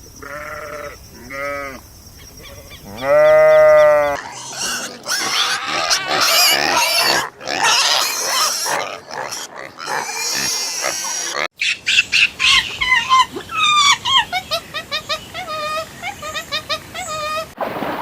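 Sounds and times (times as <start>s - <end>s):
pigs squealing and grunting: 2.4s - 11.5s.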